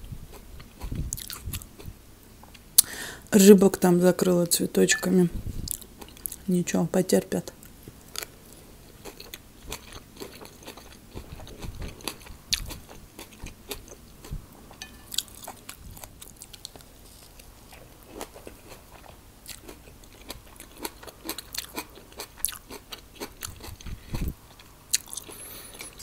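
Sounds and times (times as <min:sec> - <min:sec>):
person chewing food: 0:00.3 - 0:02.6, 0:08.1 - 0:26.0.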